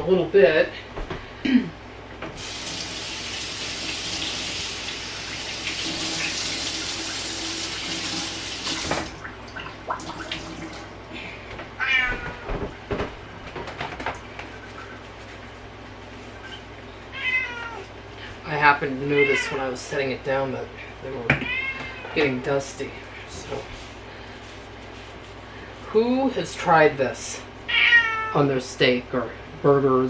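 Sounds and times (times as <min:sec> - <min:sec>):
kitchen tap running: 0:02.4 - 0:11.0
cat meowing: 0:11.8 - 0:12.6, 0:17.1 - 0:17.9, 0:21.4 - 0:22.2, 0:27.7 - 0:28.4.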